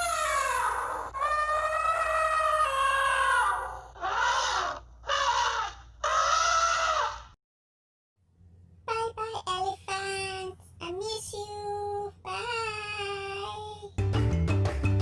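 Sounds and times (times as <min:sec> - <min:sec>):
loud animal cries: 0:00.0 - 0:07.4.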